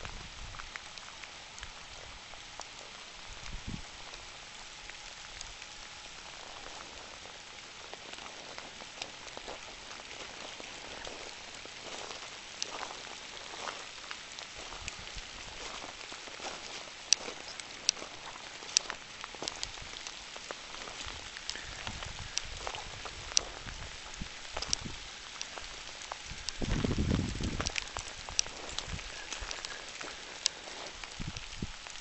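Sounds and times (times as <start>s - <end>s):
rain on trees and leaves: 0.0s - 32.0s
drops ticking: 15.6s - 32.0s.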